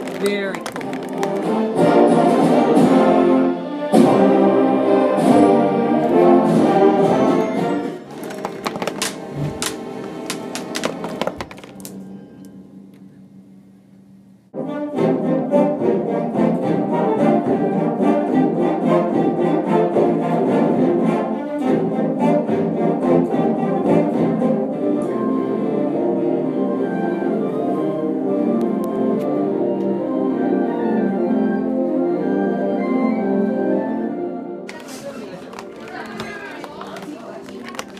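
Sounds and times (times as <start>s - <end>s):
orchestral music: 0.0s - 12.5s, 14.6s - 37.9s.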